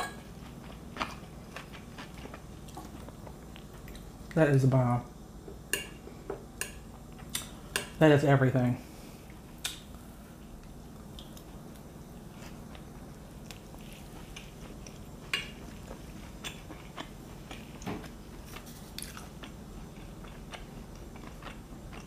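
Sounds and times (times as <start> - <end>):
person chewing food: 0.2 - 4.1, 10.5 - 22.0.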